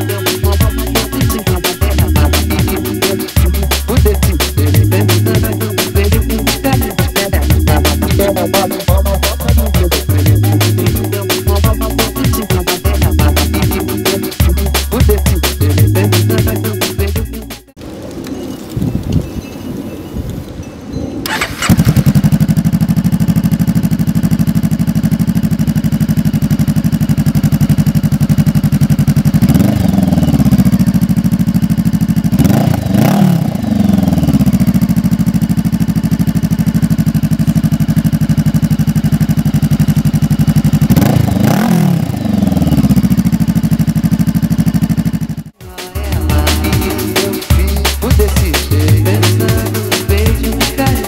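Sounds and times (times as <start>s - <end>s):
motorcycle engine idling and revving: 0.0s - 19.2s, 21.2s - 51.0s.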